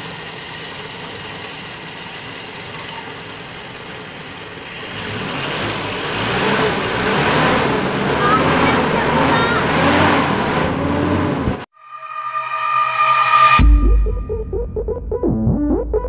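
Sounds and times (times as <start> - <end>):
jeep engine idling: 0.0 - 11.6.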